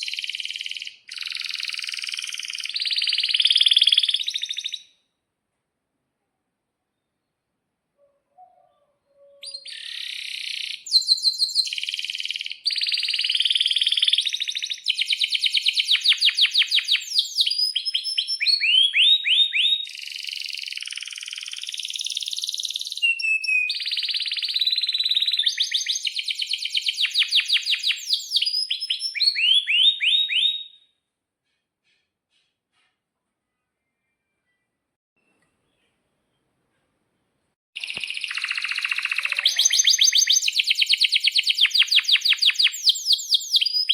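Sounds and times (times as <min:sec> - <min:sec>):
canary singing trills: 0:00.0 - 0:04.9, 0:08.0 - 0:30.8, 0:37.8 - 0:43.9.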